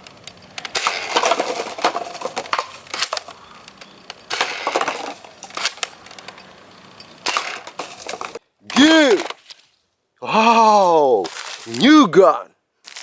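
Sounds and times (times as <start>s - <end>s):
plastic toy blasters clattering: 0.0s - 6.4s, 7.2s - 9.6s.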